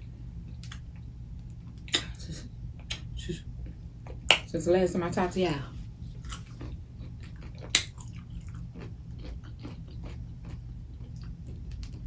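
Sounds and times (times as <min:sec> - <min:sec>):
person chewing food: 0:06.0 - 0:12.0.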